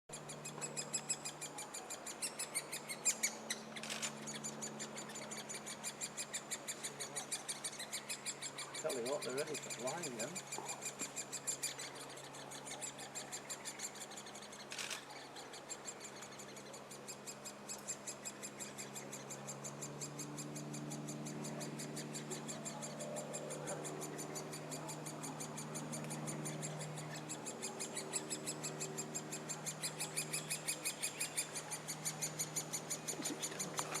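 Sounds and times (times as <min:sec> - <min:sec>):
woodpecker nestlings calling: 0:00.1 - 0:34.0.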